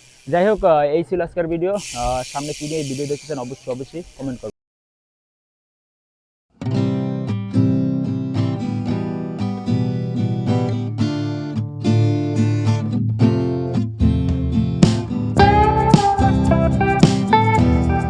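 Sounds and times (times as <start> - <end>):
strummed guitar music: 6.6 - 18.0.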